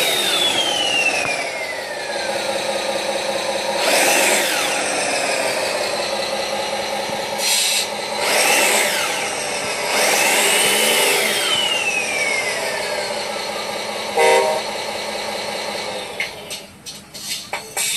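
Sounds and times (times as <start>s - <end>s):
simulated turbo whistles: 0.0s - 2.5s, 7.3s - 15.0s
simulated truck horn: 14.2s - 14.7s.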